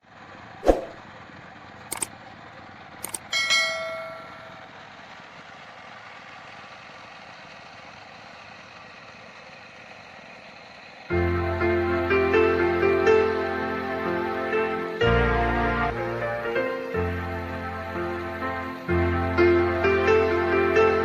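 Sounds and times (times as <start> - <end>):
sharp clicks: 1.9 - 2.1, 3.0 - 3.3
metal clang ringing: 3.3 - 4.7.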